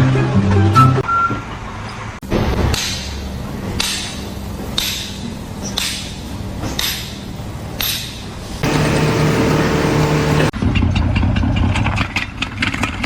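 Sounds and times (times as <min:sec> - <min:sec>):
steady low hum: 0:08.6 - 0:10.5.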